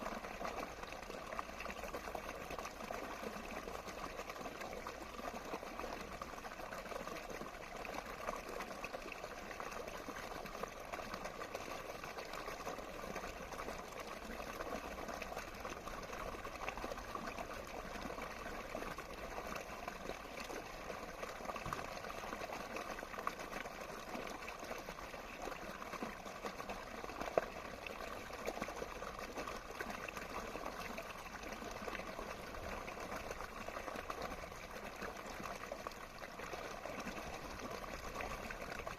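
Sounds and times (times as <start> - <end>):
running water bubbling: 0.0 - 38.9.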